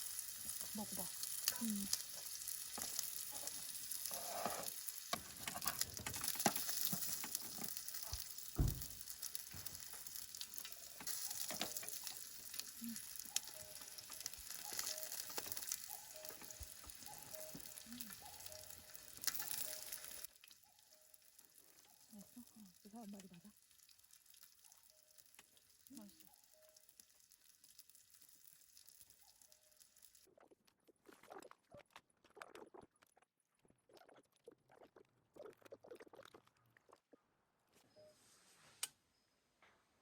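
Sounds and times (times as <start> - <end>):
food sizzling in a pan: 0.0 - 30.3
utensils clicking and knocking: 5.1 - 8.2, 9.7 - 12.2.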